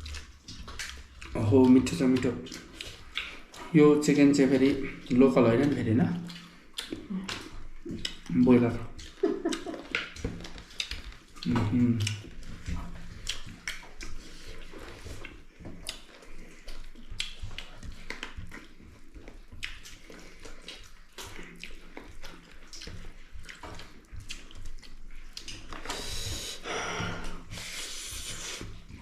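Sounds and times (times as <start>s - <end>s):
wet lip smacks: 0.0s - 3.7s, 4.8s - 18.7s, 19.6s - 29.0s
person chewing food: 0.0s - 29.0s.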